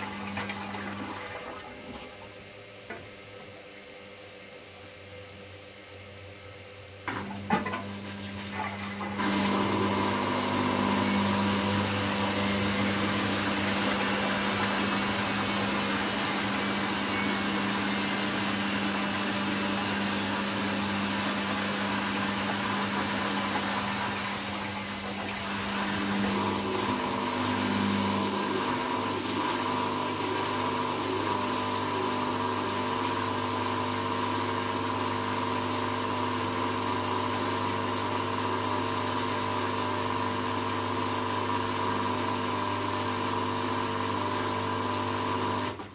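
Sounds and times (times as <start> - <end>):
washing machine motor humming: 0.0 - 45.9.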